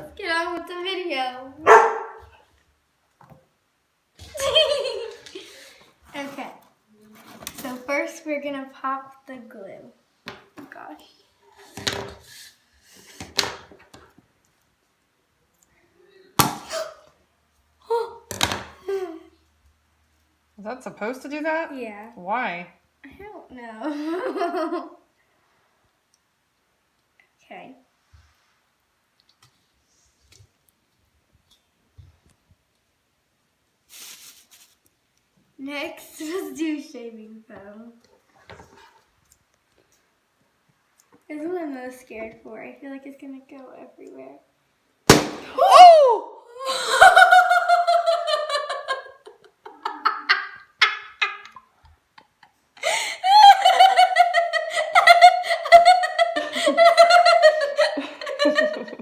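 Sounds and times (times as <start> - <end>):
high-pitched laughter: 4.3 - 5.6, 45.8 - 59.0
rustling: 33.9 - 35.1.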